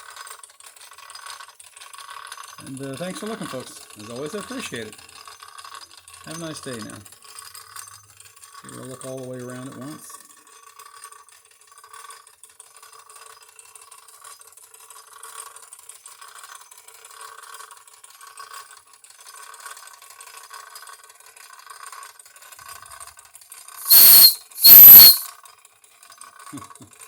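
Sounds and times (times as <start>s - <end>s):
shrill whistle blasts: 23.8s - 25.3s.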